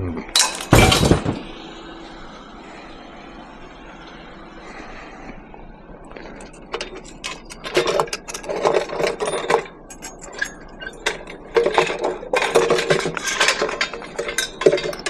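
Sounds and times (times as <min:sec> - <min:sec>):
scrap metal clattering: 0:00.4 - 0:01.8, 0:06.2 - 0:15.0.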